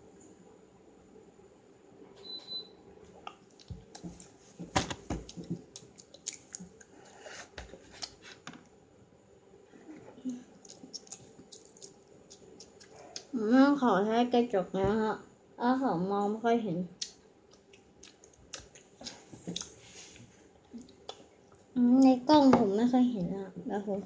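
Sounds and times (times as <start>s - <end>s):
gum chewing: 5.2s - 7.0s, 10.2s - 13.4s, 17.0s - 19.8s.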